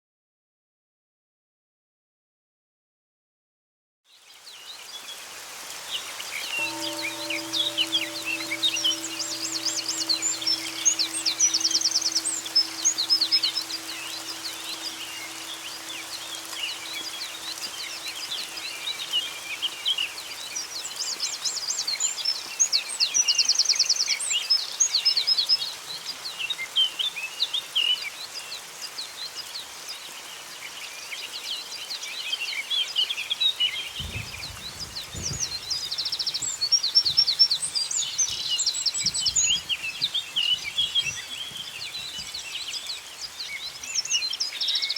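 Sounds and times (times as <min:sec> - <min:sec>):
songbirds chirping and whistling: 0:06.4 - 0:25.2, 0:33.5 - 0:44.9
low held tone: 0:06.5 - 0:19.9
rapid bird trill: 0:06.6 - 0:19.5.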